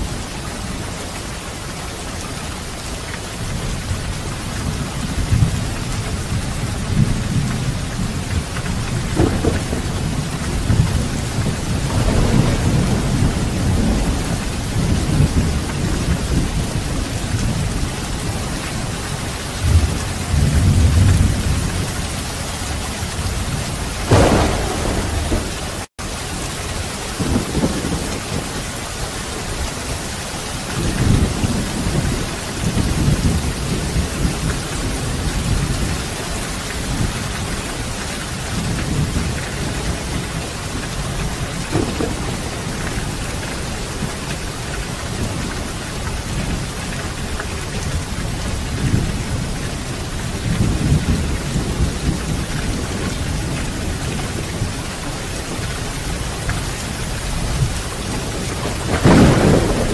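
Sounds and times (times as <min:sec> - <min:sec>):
heavy rain falling: 0:00.0 - 0:59.9
rolling thunder rumbles: 0:03.4 - 0:59.9
sharp thunderclap: 0:08.4 - 0:16.6, 0:24.0 - 0:25.9, 0:27.1 - 0:28.6, 0:41.1 - 0:43.2, 0:57.3 - 0:59.9.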